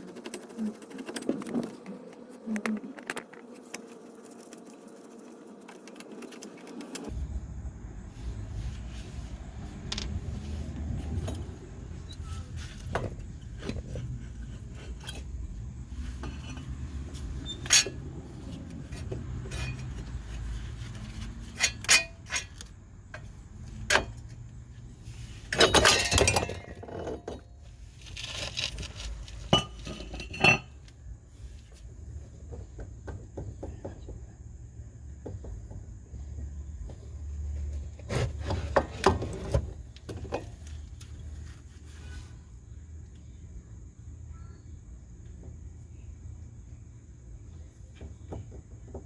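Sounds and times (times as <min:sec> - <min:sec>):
metal hand tools clinking: 0:25.5 - 0:27.2.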